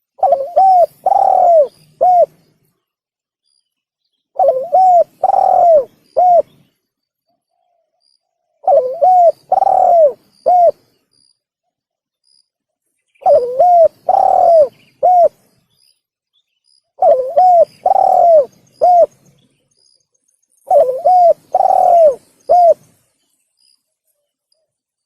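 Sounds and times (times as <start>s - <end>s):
dove cooing: 0.0s - 2.4s, 4.4s - 6.6s, 8.6s - 10.9s, 13.2s - 15.4s, 17.0s - 19.2s, 20.7s - 22.9s.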